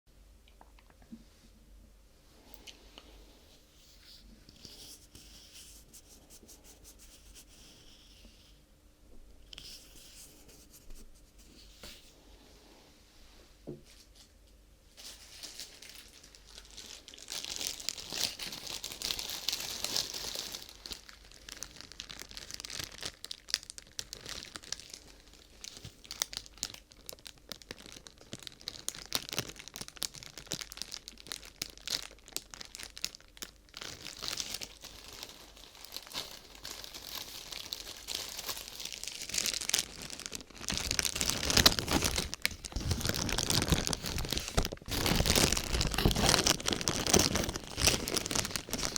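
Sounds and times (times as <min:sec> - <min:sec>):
crinkly sheet being crumpled: 0:15.0 - 0:48.9.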